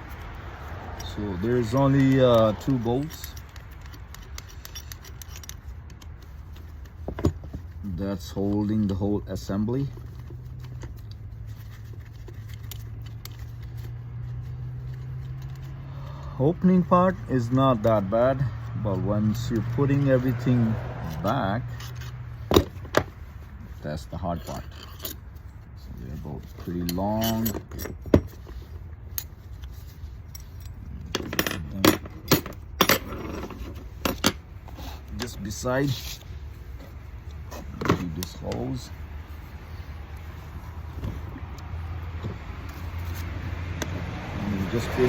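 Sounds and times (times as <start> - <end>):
metal tool clicks and taps: 1.7 - 7.6.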